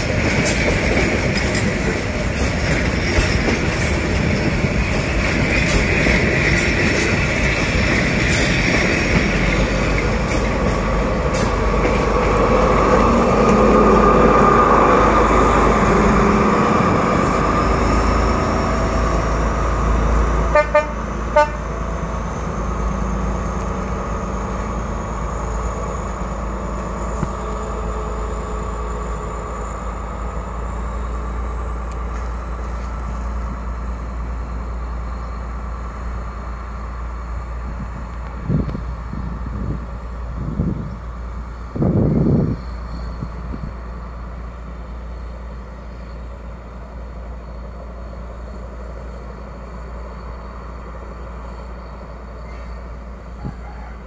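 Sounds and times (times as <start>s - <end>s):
train wheels rumbling over rails: 0.0s - 54.0s
train horn toots: 20.5s - 21.8s.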